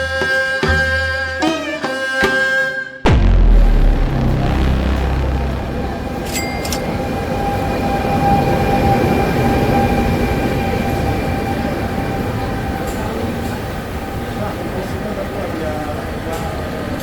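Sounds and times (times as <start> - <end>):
held whine: 3.1 - 13.6
train rumbling on rails: 4.6 - 17.0.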